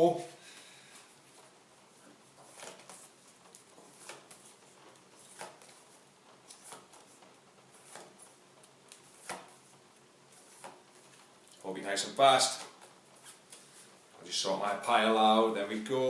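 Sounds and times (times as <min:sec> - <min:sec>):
cards shuffling: 0:02.3 - 0:11.6, 0:12.4 - 0:14.0.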